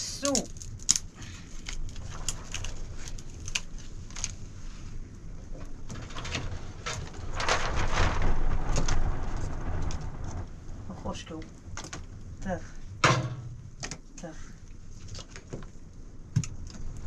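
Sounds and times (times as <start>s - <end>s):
steady low rumble: 0.0s - 17.0s
rain falling: 5.7s - 13.8s.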